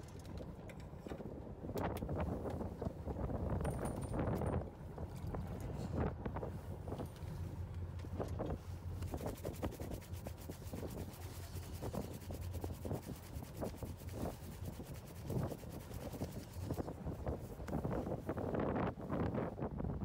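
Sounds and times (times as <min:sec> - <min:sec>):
wind on microphone: 0:00.0 - 0:20.0
boat engine humming: 0:04.2 - 0:19.1.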